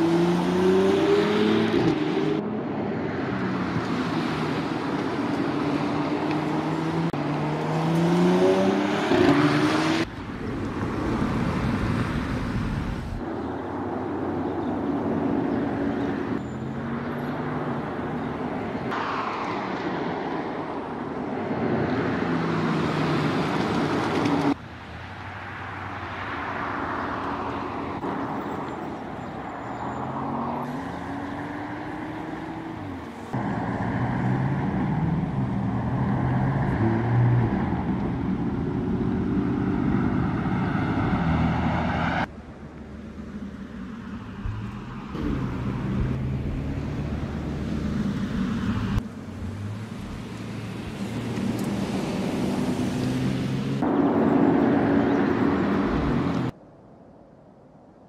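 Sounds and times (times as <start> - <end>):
tyre and road noise: 0.0 - 58.0.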